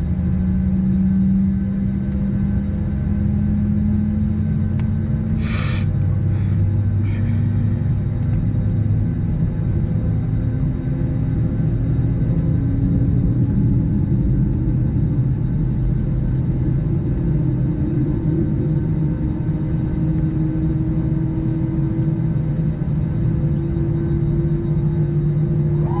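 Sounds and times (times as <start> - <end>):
jet engine rumble in cabin: 0.0 - 26.0
hum rising in pitch: 25.4 - 26.0.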